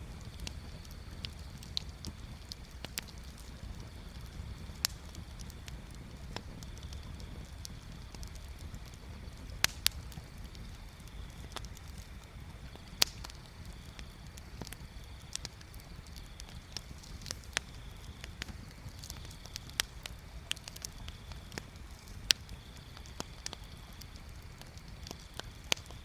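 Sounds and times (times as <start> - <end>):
bonfire pops and snaps: 0.0 - 26.0
low fire rumble: 0.0 - 26.0.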